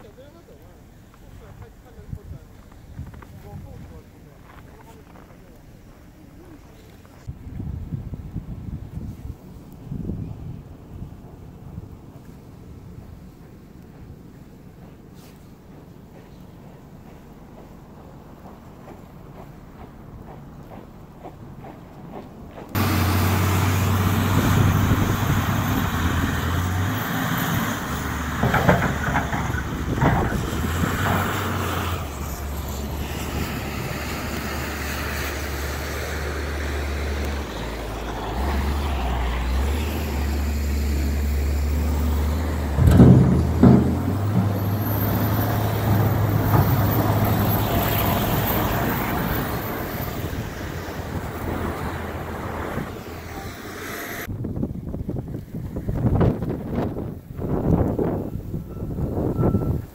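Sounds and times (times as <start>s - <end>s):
heavy vehicle engine running: 12.5s - 54.3s
sharp knocks: 42.7s - 44.9s
loud clatter: 42.7s - 47.6s.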